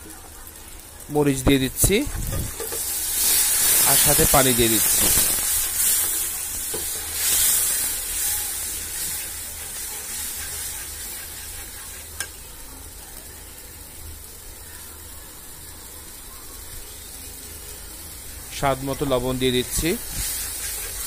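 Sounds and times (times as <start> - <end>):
masala sizzling in a wok: 0.0 - 21.0
metal spatula stirring: 2.5 - 12.4, 20.1 - 21.0.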